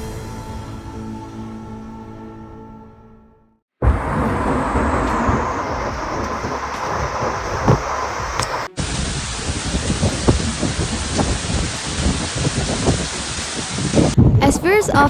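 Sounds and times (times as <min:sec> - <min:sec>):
heavy torrential rain: 0:03.8 - 0:14.2.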